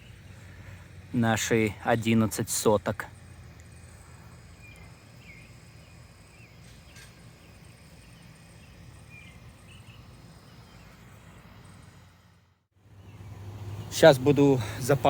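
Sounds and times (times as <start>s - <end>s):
high insect drone: 0.0s - 15.0s
faint bird chirps: 3.2s - 12.1s.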